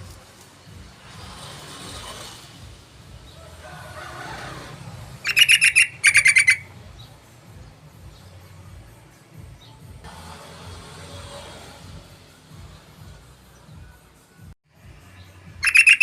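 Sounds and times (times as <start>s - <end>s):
bulbul rapid chattering call: 5.2s - 6.7s, 15.6s - 16.0s.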